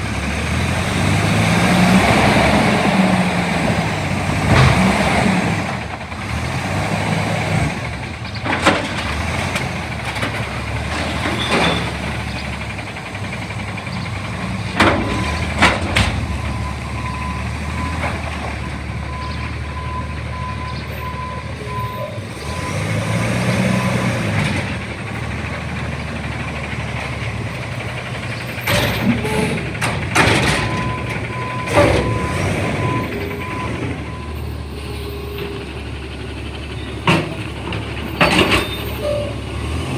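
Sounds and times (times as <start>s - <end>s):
garbage truck engine running: 0.0s - 39.9s
reversing alarm beeping: 15.0s - 24.1s, 30.3s - 39.9s.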